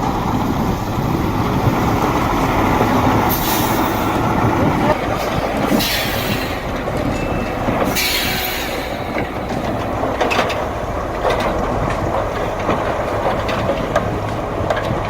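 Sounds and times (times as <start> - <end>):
heavy vehicle rumbling: 0.0 - 15.0
metallic clanking and rattling: 3.4 - 15.0.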